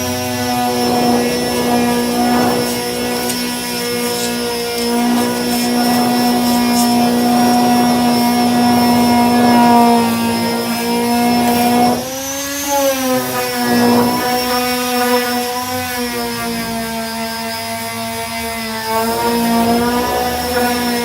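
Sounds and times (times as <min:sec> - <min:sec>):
electric disc sander running: 0:00.0 - 0:21.0.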